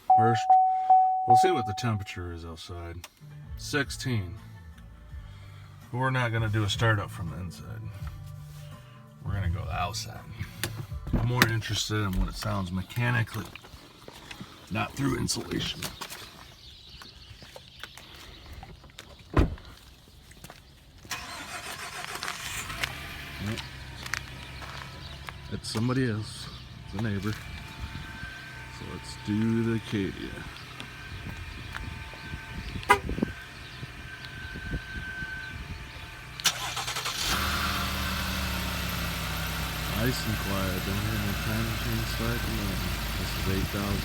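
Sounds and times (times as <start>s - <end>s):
car engine idling: 0.0s - 2.1s, 21.1s - 44.0s
heavy door thud: 19.4s - 19.6s.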